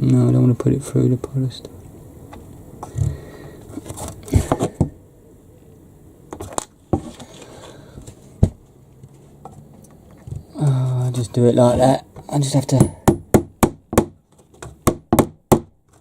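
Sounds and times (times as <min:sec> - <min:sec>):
timber and nails knocking: 0:12.7 - 0:15.8.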